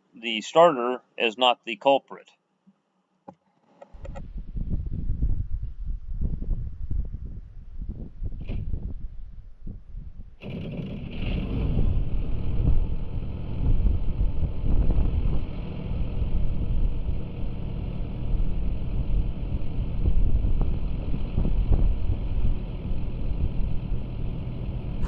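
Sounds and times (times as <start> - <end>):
tractor diesel engine starting: 10.4 - 25.0.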